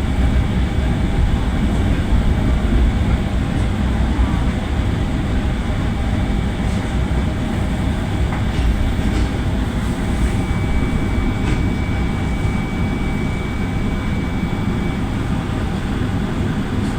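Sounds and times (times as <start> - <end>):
train rumbling on rails: 0.0 - 16.9.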